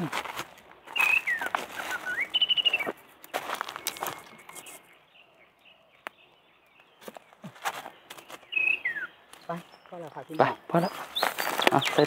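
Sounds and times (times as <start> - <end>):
rustling and crunching: 0.0 - 4.9, 10.8 - 12.0
birds chirping: 0.0 - 12.0.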